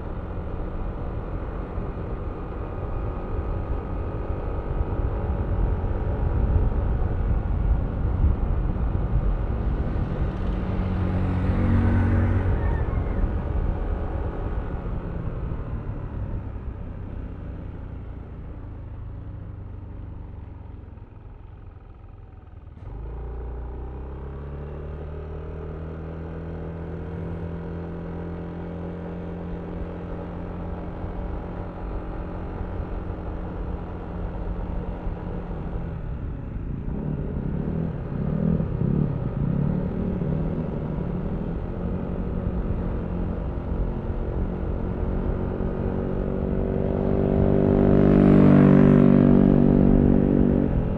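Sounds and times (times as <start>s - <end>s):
scooter engine accelerating: 9.6s - 13.7s.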